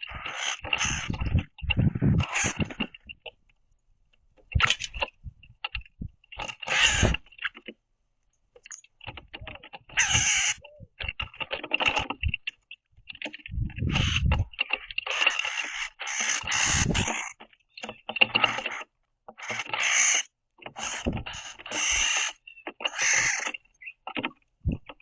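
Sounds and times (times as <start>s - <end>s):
taps and scrapes on wood: 0.0s - 3.5s, 4.1s - 7.8s, 8.6s - 25.0s
birds flapping on wooden feeder: 16.2s - 17.4s.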